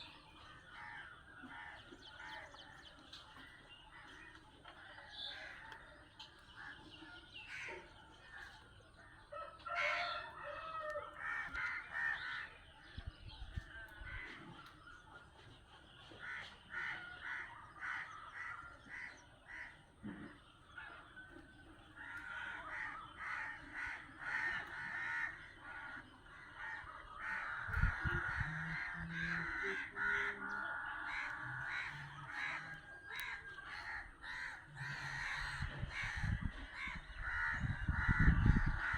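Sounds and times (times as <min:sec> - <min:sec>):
birds squawking and cawing: 0:00.0 - 0:38.9.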